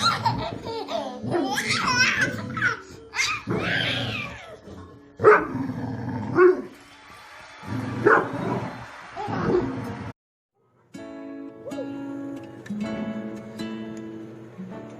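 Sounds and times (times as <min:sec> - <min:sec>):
dog barking: 0:05.2 - 0:05.6, 0:06.3 - 0:06.7, 0:08.0 - 0:08.4.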